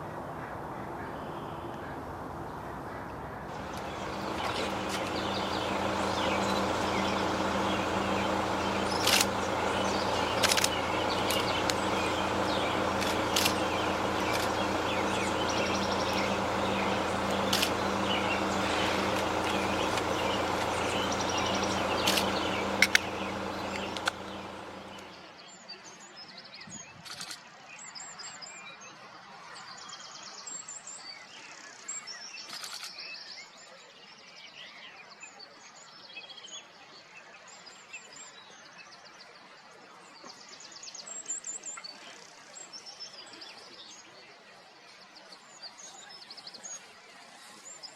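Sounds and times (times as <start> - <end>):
steady background noise with hum: 1.9 - 25.1
small birds chirping: 2.6 - 25.1
sharp clicks: 3.5 - 25.1.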